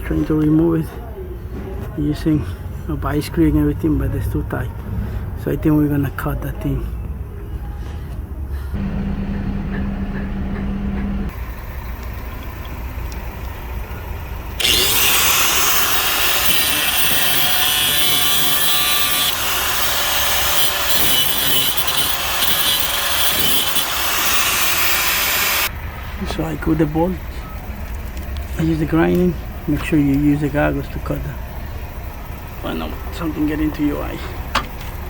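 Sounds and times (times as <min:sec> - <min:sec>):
angle grinder cutting metal: 0:14.6 - 0:25.7.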